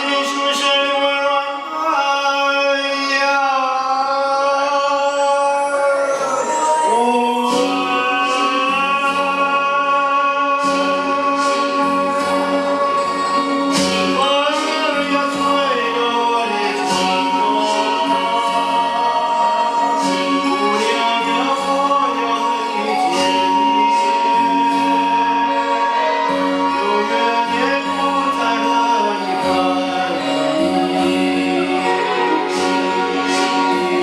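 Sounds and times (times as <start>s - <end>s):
instrumental backing: 0.0s - 34.0s
person singing: 0.0s - 34.0s.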